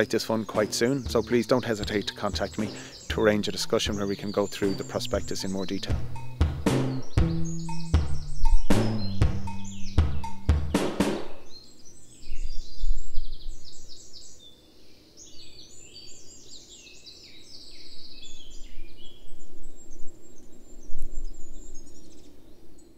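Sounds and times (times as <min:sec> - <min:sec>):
songbirds chirping and singing: 0:00.0 - 0:22.9
drum hits of background music: 0:00.6 - 0:03.4, 0:04.6 - 0:11.5.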